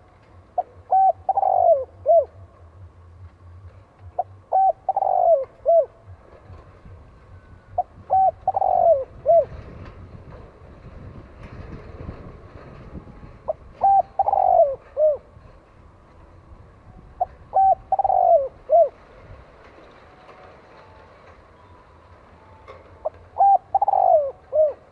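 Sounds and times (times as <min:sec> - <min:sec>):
dove cooing: 0:00.6 - 0:02.5, 0:04.2 - 0:06.3, 0:07.7 - 0:09.9, 0:13.4 - 0:15.6, 0:17.2 - 0:19.1, 0:23.0 - 0:24.9.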